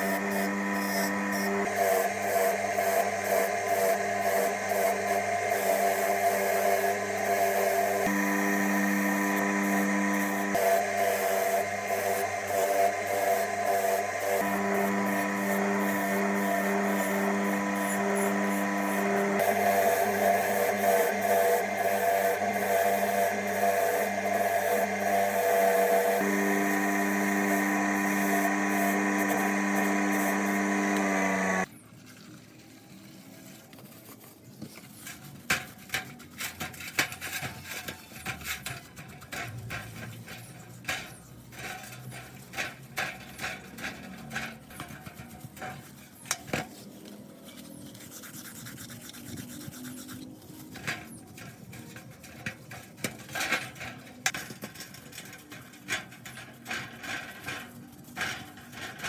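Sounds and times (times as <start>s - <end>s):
electric motor humming: 0.0s - 31.7s
scraping on metal parts: 33.9s - 59.0s.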